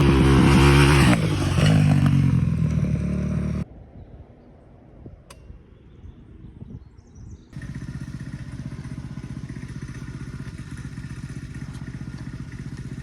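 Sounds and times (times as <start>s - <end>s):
dirt bike engine idling: 7.6s - 13.0s.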